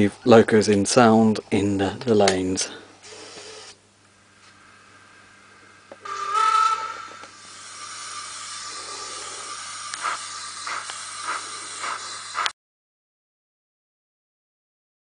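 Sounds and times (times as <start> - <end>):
model train whistle blast: 6.0 - 8.2
steam hiss: 6.1 - 12.5
steam locomotive chuffs: 6.1 - 12.5.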